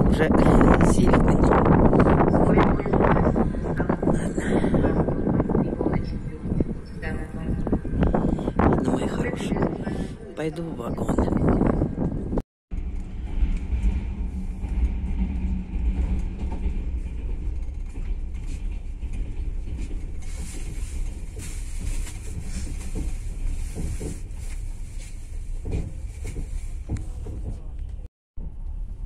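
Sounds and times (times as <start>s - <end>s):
train running low rumble: 0.0s - 29.0s
wheel and carriage clicks and rattles: 12.7s - 28.0s.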